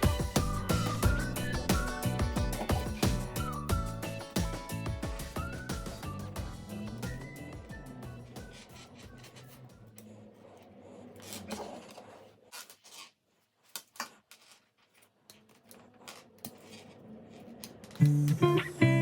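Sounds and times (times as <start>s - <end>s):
musical tone: 0.0s - 8.6s, 18.0s - 19.0s.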